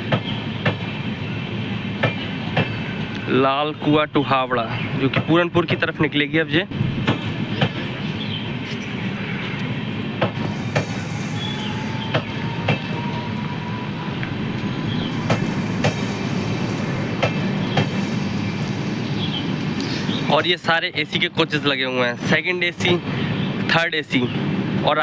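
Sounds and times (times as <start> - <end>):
train coaches rumbling: 0.0 - 25.0
thin wheel squeal: 10.5 - 18.5.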